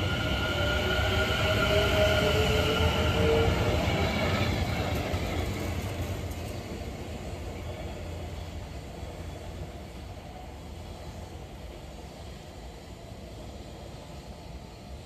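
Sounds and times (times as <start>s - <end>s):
train traction motor whine: 0.0s - 6.4s
train wheel rumble: 0.0s - 15.0s.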